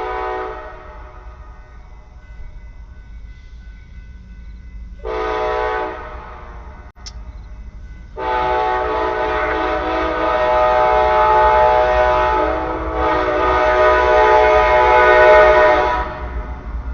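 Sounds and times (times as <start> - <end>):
locomotive horn blast: 0.0 - 1.3, 5.0 - 6.6, 8.2 - 16.5
train rumble: 0.0 - 16.9.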